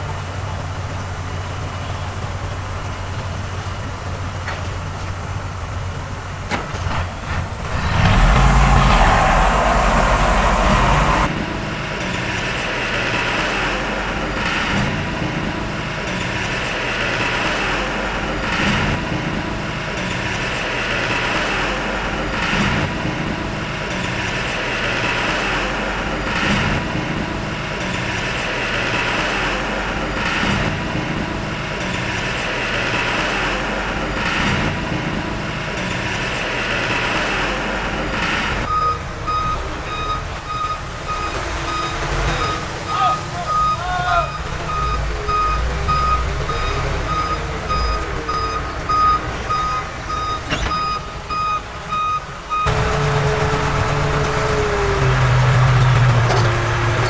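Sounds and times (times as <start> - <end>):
diesel earthmoving machinery: 0.0 - 57.0
reversing alarm beeping: 38.7 - 53.8.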